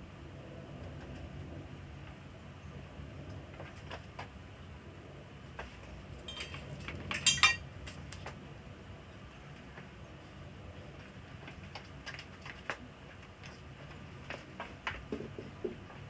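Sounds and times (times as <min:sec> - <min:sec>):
small metal objects clinking: 0:06.3 - 0:07.6.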